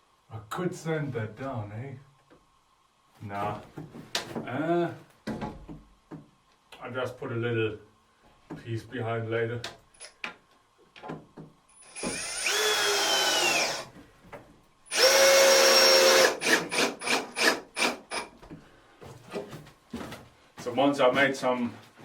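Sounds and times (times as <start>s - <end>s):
power drill driving screws into wood: 11.8s - 13.9s, 14.9s - 18.3s.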